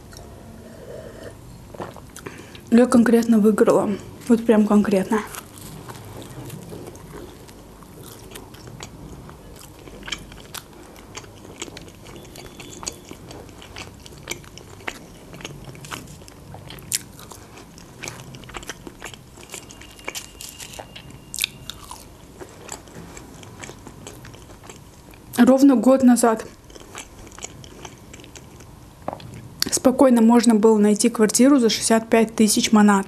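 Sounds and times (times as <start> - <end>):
chewing with sharp crunches: 5.3 - 25.4, 26.4 - 29.7.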